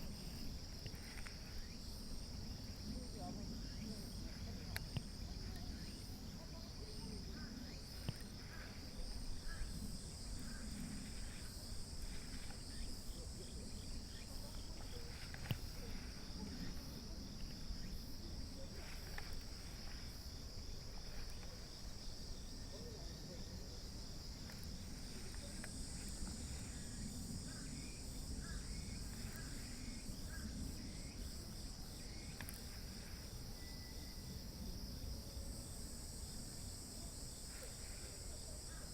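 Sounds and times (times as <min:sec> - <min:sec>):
higher-pitched insect sound: 0:00.0 - 0:22.8
insects chorus: 0:00.0 - 0:38.9.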